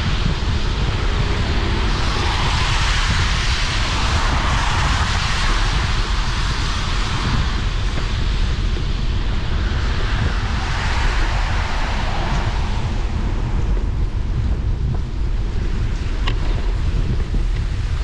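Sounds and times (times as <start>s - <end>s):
wind buffeting microphone: 0.0s - 18.0s
tyres hissing on wet road: 9.4s - 13.6s.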